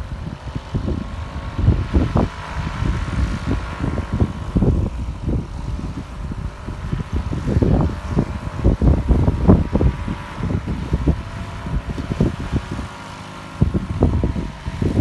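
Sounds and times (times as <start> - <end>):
faint paramotor engine tone: 0.0 - 15.0
wind buffeting microphone: 0.0 - 15.0.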